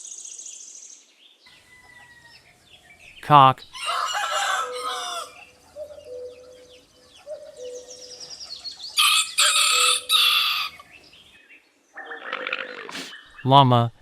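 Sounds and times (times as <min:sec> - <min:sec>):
faint bird chirping: 0:00.0 - 0:14.0
rooster crowing: 0:01.5 - 0:02.7, 0:03.8 - 0:05.7, 0:09.0 - 0:10.9.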